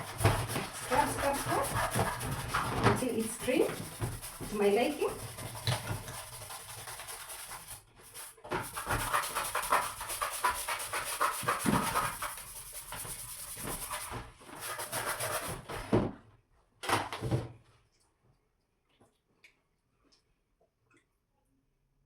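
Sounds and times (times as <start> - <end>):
toothbrush scrubbing plastic: 0.0 - 15.8.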